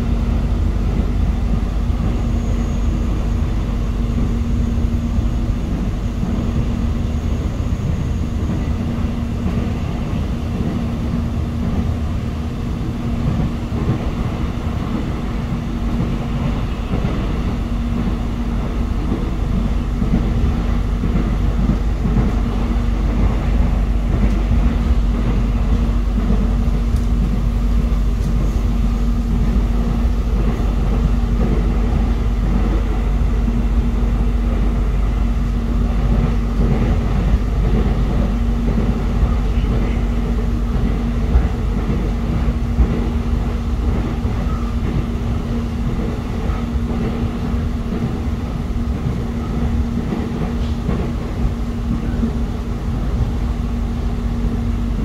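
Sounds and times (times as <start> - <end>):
constant low hum: 0.0 - 55.0
train rumbling: 0.0 - 55.0.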